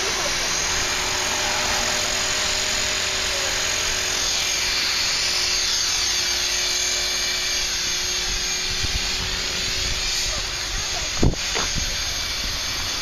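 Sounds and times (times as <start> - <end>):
rc helicopter motor whining: 0.0 - 13.0
wind on microphone: 10.7 - 13.0.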